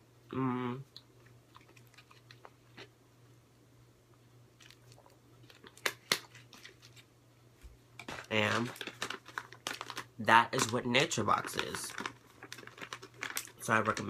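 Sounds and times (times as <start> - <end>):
faint low hum: 0.0 - 14.0
person chewing crunchy food: 1.0 - 3.0, 4.6 - 7.0, 11.4 - 13.7.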